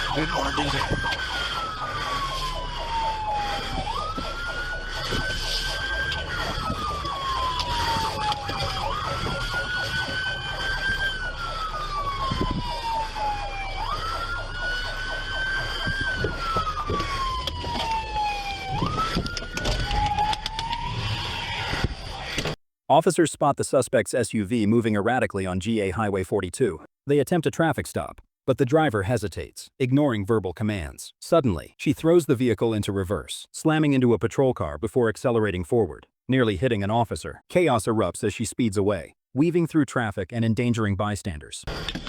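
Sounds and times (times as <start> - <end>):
police siren wailing: 0.0 - 22.3.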